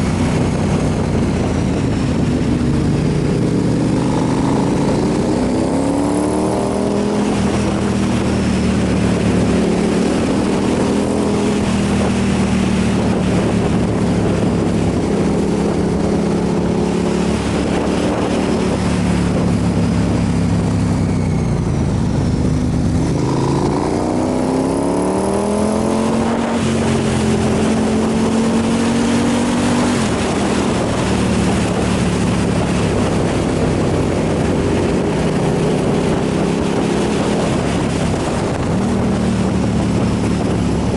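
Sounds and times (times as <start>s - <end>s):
motorcycle engine running: 0.0s - 40.9s
wind rush: 0.0s - 40.9s.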